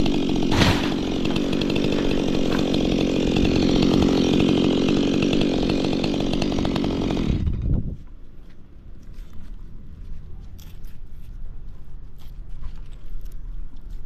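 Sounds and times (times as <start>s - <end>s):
chainsaw cutting wood: 0.0s - 8.1s.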